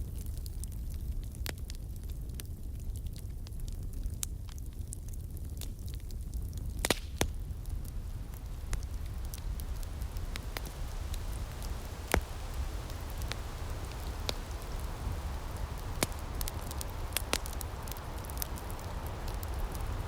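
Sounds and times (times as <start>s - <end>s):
soft breeze-like hiss: 0.0s - 20.0s
wood fire crackling: 0.0s - 20.0s.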